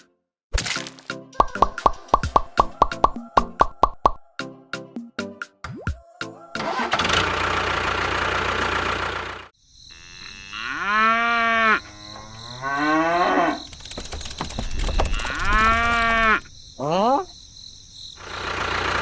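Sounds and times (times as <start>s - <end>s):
fast clicking: 1.4s - 4.2s, 13.6s - 16.4s
small motor rattling: 13.7s - 16.4s.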